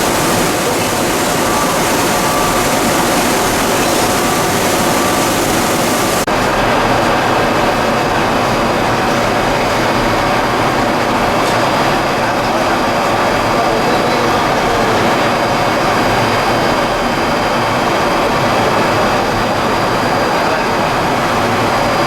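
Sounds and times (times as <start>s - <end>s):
faint steady tones: 0.0s - 6.3s
machinery mechanical din: 0.0s - 13.6s.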